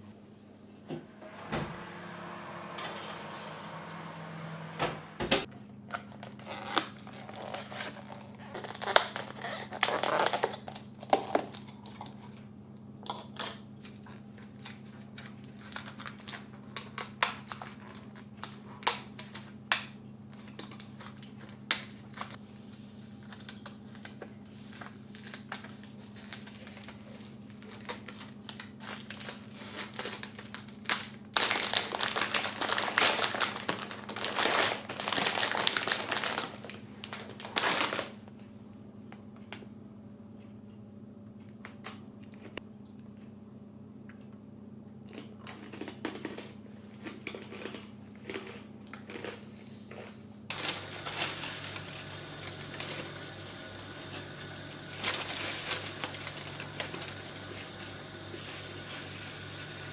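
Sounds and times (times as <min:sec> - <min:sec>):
low steady hum: 0:00.0 - 0:59.9
plastic packaging crinkling: 0:06.1 - 0:12.3, 0:14.4 - 0:19.4, 0:23.0 - 0:38.2, 0:50.5 - 0:59.9.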